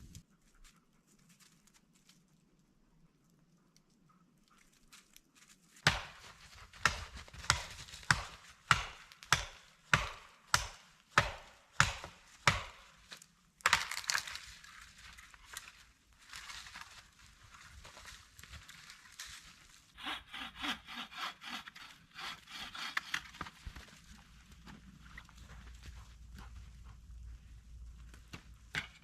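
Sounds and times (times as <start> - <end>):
wood chopping strikes: 5.8 - 14.4, 20.0 - 24.0, 28.3 - 29.0
rough scraping: 14.7 - 29.0.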